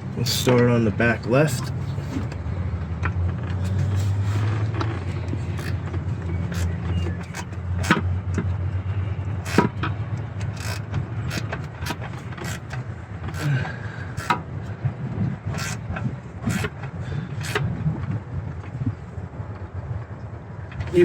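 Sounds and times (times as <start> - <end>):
ratchet clicking: 3.5 - 8.6, 9.4 - 13.5, 14.2 - 14.5, 15.5 - 16.8, 17.4 - 17.7.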